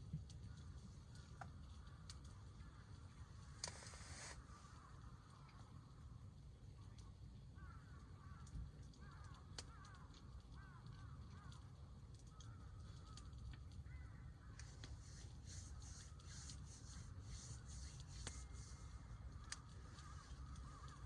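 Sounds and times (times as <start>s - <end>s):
campfire crackling: 0.0s - 21.0s
distant birds calling: 12.2s - 21.0s.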